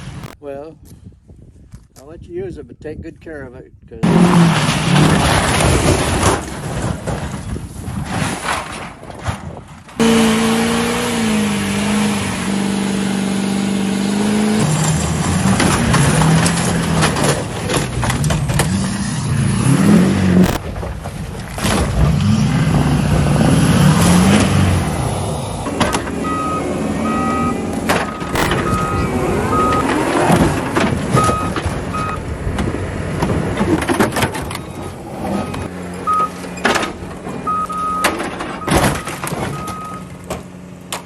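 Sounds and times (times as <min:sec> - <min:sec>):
truck engine revving: 0:04.0 - 0:06.3, 0:10.0 - 0:20.6, 0:21.8 - 0:40.7.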